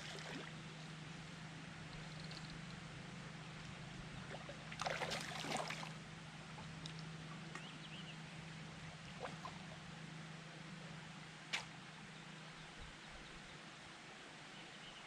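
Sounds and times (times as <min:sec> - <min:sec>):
water splashing: 0:00.0 - 0:00.5, 0:04.3 - 0:06.0
low background hum: 0:00.0 - 0:15.0.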